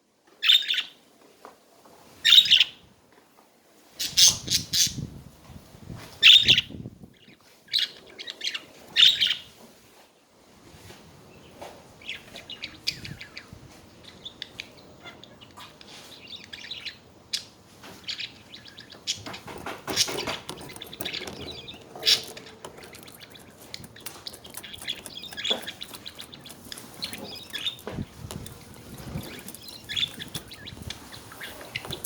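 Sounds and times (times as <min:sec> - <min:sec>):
budgerigars chattering: 0:12.1 - 0:32.0.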